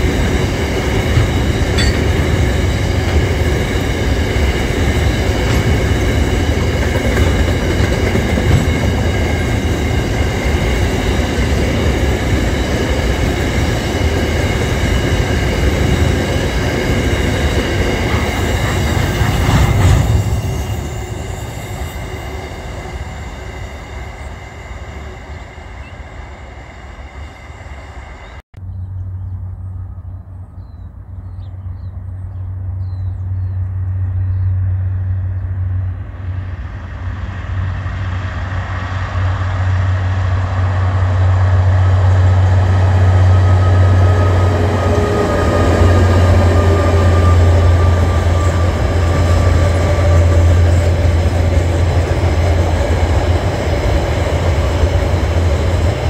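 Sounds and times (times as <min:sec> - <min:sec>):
train wheels clattering on rails: 0:00.0 - 0:24.0
diesel locomotive engine drone: 0:00.0 - 0:56.0.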